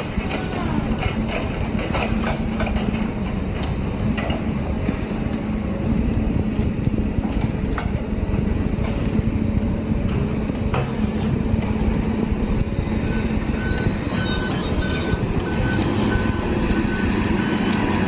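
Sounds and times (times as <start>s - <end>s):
heavy diesel engine running: 0.0s - 18.0s
backup alarm beeping: 12.8s - 18.0s.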